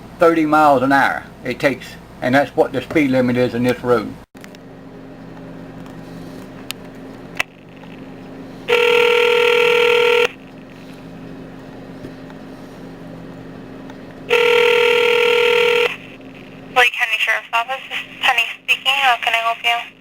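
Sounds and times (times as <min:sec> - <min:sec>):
telephone ringback tone: 0:08.7 - 0:10.4, 0:14.3 - 0:16.0.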